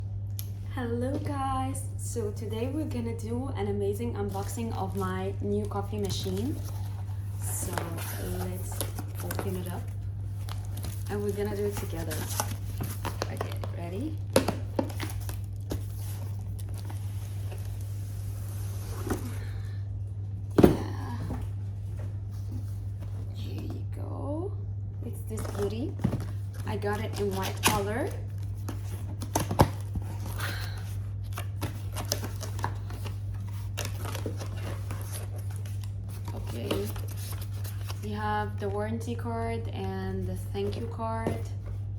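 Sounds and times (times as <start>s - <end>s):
steady low hum: 0.0s - 41.9s
packaging rustling and scraping: 4.3s - 19.7s, 25.3s - 38.6s.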